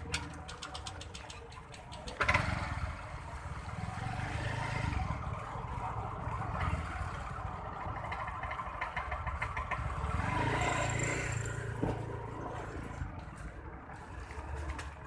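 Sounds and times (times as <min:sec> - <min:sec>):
vehicle engine passing: 0:09.8 - 0:13.0.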